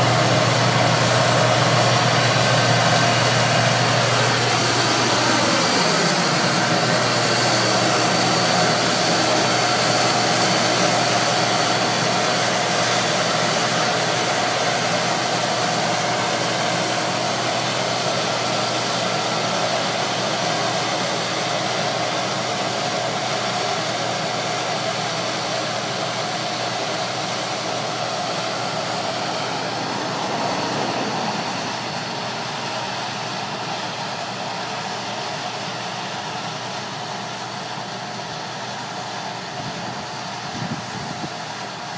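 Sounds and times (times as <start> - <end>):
combine harvester running: 0.0 - 41.9
machinery whine: 0.0 - 41.9.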